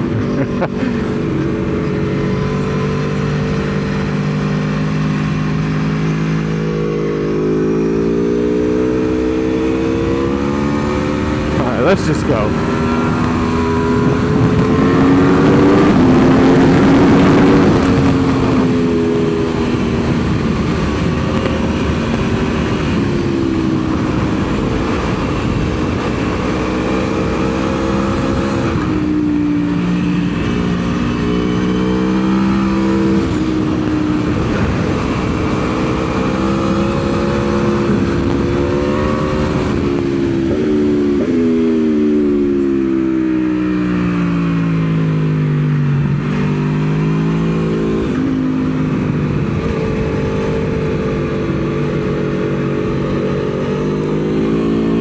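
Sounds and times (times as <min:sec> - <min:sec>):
motorcycle engine shifting gears: 0:00.0 - 0:55.0
wind rush on microphone: 0:12.5 - 0:43.4, 0:47.3 - 0:55.0.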